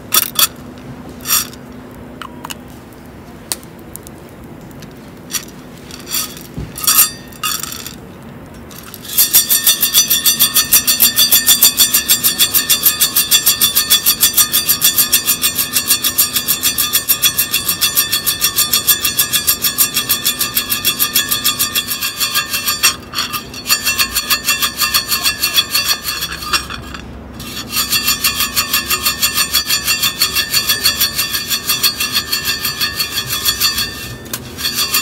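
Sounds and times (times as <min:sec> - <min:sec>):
fast rhythmic rattle: 0:08.8 - 0:35.0.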